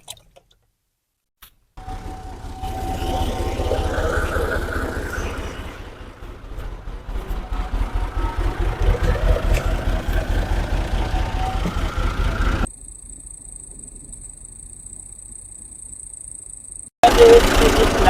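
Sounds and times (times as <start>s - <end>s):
tractor diesel engine chugging: 1.8s - 12.7s, 17.0s - 18.0s.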